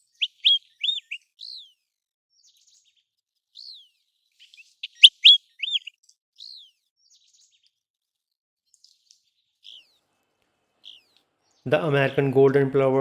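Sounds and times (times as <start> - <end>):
bird whistled calls: 0.0 - 1.6, 4.4 - 5.9.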